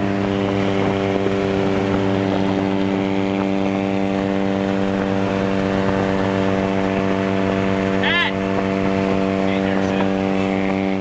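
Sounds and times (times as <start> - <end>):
rotary engine buzzing: 0.0 - 11.0.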